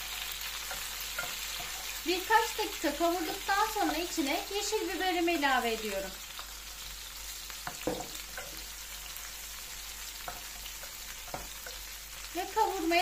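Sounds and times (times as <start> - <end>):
peppers sizzling in oil: 0.0 - 13.0
wooden spoon knocking pot: 7.7 - 8.6.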